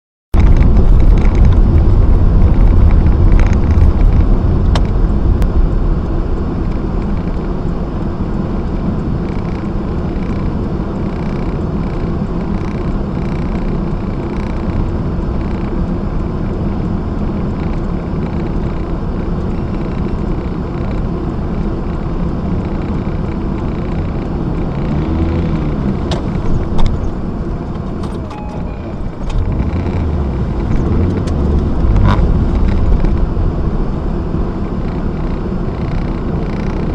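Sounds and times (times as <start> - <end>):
car engine and road noise: 0.3 - 36.9
engine revving: 21.9 - 36.9.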